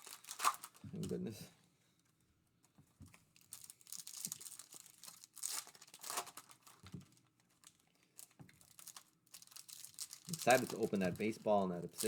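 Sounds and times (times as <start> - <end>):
packaging torn open and crinkled: 0.0 - 0.8, 3.3 - 11.2.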